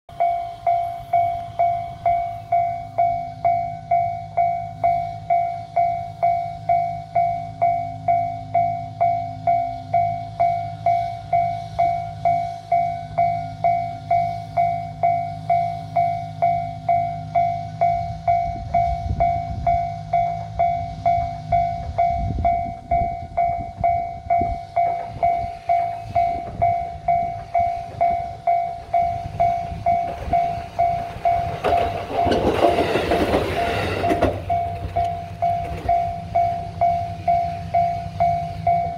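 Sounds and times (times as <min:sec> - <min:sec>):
diesel railcar passing: 0:00.1 - 0:38.9
level-crossing bell dinging: 0:00.1 - 0:38.9.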